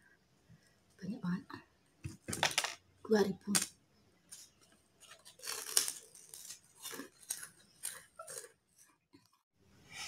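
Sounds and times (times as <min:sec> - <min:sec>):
crisp crunches of chewing: 0:05.0 - 0:09.4.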